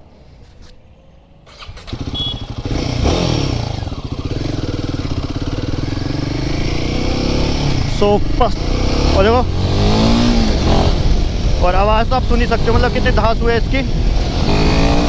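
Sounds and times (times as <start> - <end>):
motorcycle engine starting and idling: 1.4 - 11.5.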